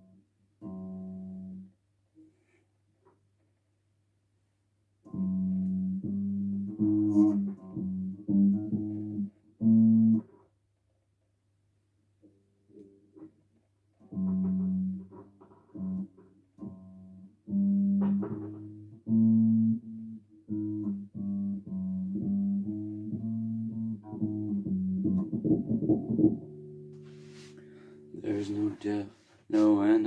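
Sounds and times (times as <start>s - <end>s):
bass guitar notes: 0.6s - 1.7s, 5.1s - 10.2s, 14.1s - 30.0s.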